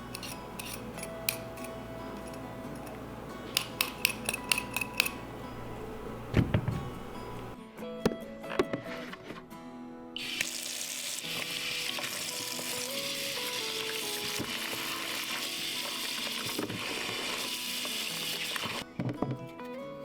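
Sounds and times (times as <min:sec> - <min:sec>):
soft background music: 0:00.0 - 0:20.0
sizzling hiss: 0:10.2 - 0:18.8.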